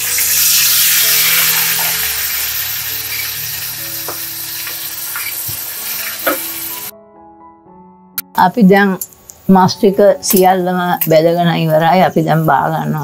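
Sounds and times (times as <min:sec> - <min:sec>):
chicken sizzling in hot oil: 0:00.0 - 0:06.9.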